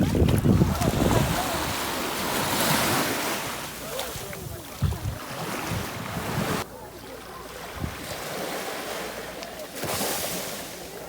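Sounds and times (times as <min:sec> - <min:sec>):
wind buffeting microphone: 0:00.0 - 0:03.1, 0:04.2 - 0:06.6
sea waves splashing: 0:00.0 - 0:11.0.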